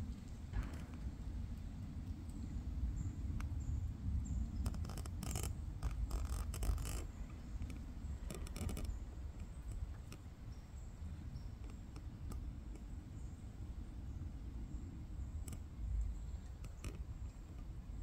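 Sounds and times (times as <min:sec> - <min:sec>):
rapid scratchy clicks: 0:04.6 - 0:10.2.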